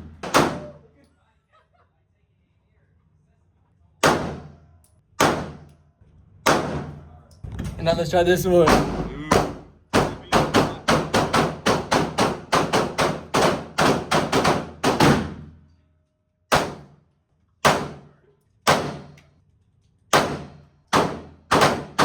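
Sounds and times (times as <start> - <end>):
rapid gunfire: 0.0 - 0.7, 4.0 - 4.5, 5.2 - 5.6, 6.5 - 7.0, 8.6 - 15.5, 16.5 - 16.9, 17.6 - 18.1, 18.7 - 19.1, 20.2 - 22.0
single gunshots: 0.0 - 0.8, 4.0 - 4.5, 5.2 - 5.6, 6.5 - 7.8, 16.5 - 16.9, 17.6 - 18.0, 18.7 - 19.1.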